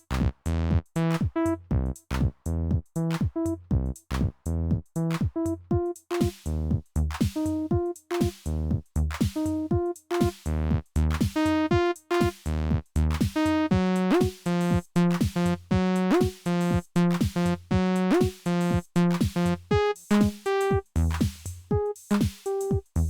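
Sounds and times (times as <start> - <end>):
gliding synth bass line: 0.0 - 2.8
drum machine beat: 0.0 - 23.0.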